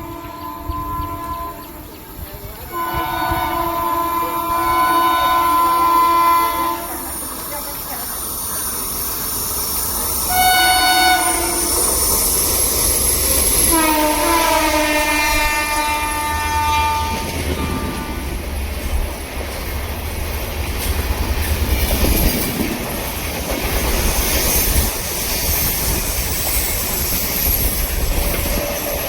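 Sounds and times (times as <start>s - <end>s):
train horn blasts: 0.0s - 2.0s, 2.7s - 7.1s, 10.3s - 12.1s, 13.6s - 18.4s
train rumbling and clattering on track: 0.0s - 29.0s.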